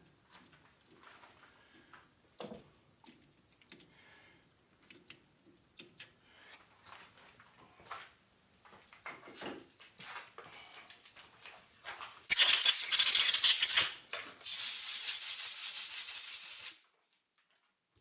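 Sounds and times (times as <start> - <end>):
compressed air blasts: 12.3 - 16.8.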